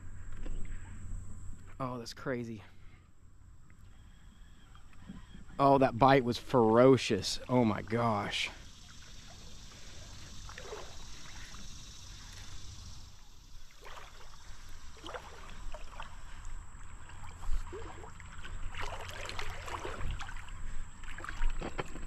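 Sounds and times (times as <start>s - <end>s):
moving water washing: 6.2s - 22.0s
water splashing: 6.2s - 22.0s.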